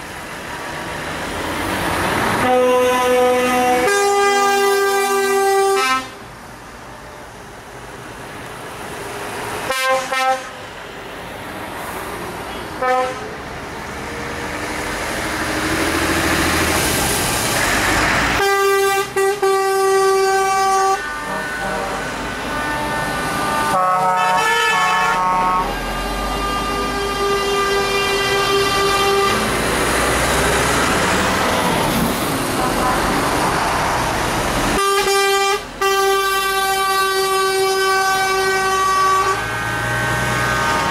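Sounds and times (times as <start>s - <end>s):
truck engines rumbling: 0.0s - 40.9s
truck horn blasts: 2.4s - 6.2s, 9.7s - 10.6s, 12.5s - 13.4s, 18.4s - 29.5s, 34.7s - 40.9s.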